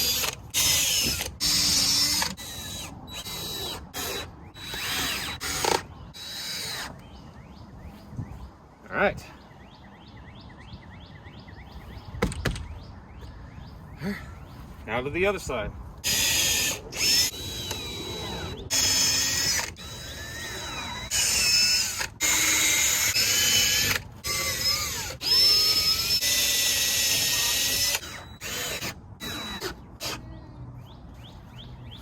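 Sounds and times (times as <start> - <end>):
power drill running: 0.0 - 7.0, 16.0 - 30.2.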